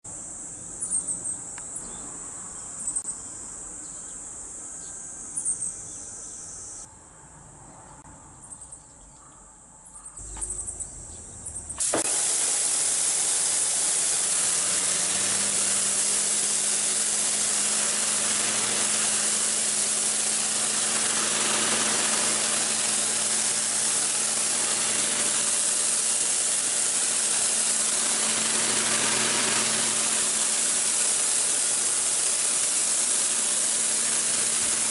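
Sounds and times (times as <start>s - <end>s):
faint high chirps: 7.9s - 11.8s
pressure washer spraying: 11.7s - 34.9s.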